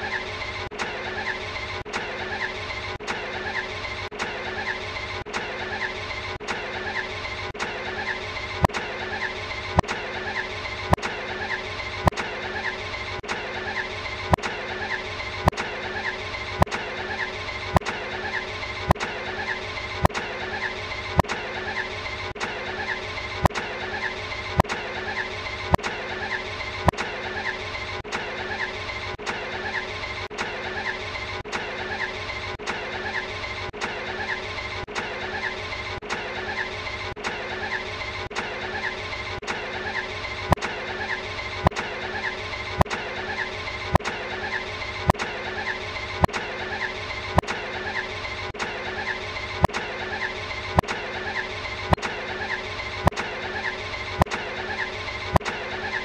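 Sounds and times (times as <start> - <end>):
sharp click: 6.4 - 6.7, 18.9 - 19.2, 34.9 - 35.2, 47.4 - 47.6, 48.6 - 48.8.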